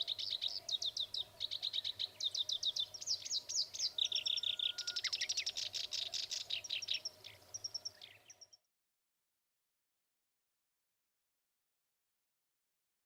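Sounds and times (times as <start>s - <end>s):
warbler singing: 0.0s - 8.7s.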